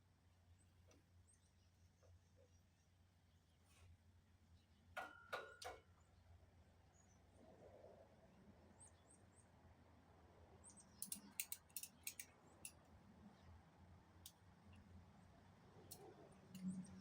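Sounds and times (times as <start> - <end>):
light sharp clicks: 11.0 - 12.9.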